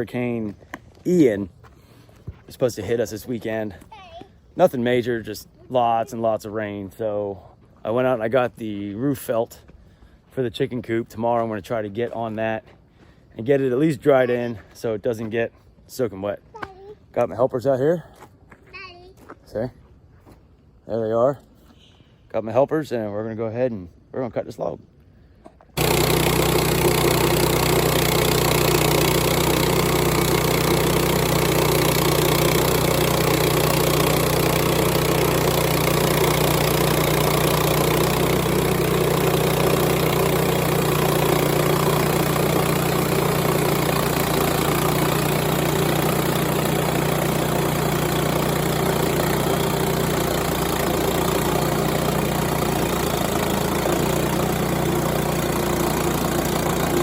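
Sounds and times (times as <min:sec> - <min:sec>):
sawmill engine running: 0:25.8 - 0:57.0.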